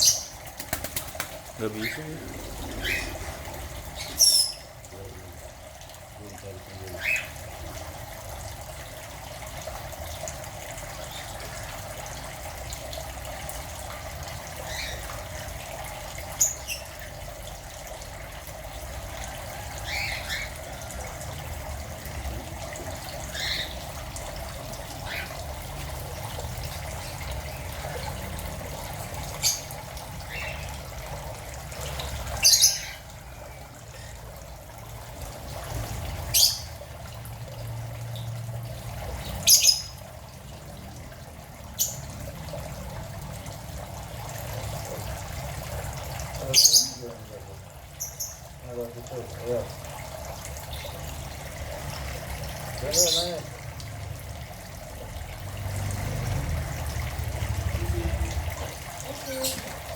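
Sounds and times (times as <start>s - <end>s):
birds chirping and squawking: 0.0s - 5.3s, 6.7s - 7.4s, 16.4s - 17.0s, 19.8s - 21.1s, 22.4s - 25.6s, 29.3s - 30.8s, 31.9s - 33.2s, 36.2s - 36.8s, 39.2s - 40.0s, 41.8s - 42.1s, 46.4s - 47.3s, 52.8s - 53.5s, 57.6s - 59.9s
trickle of running water: 0.0s - 59.9s.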